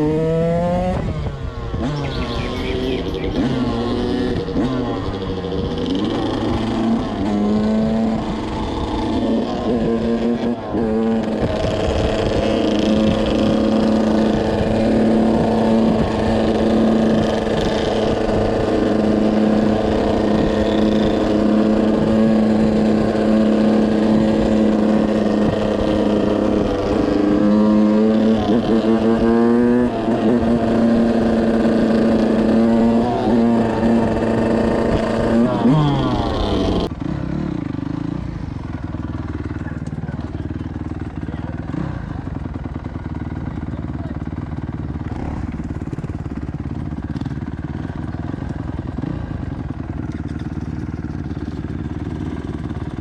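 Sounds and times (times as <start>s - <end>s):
two-stroke dirt bike engine revving: 0.0s - 53.0s.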